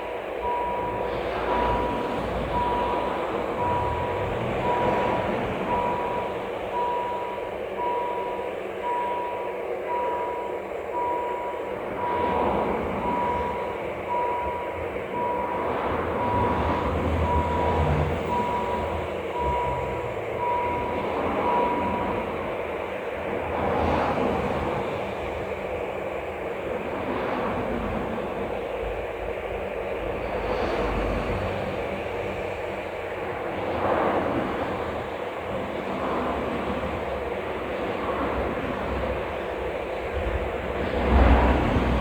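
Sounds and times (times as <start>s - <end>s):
continuous rumble: 0.0s - 42.0s
level crossing signal beeping: 0.3s - 23.8s.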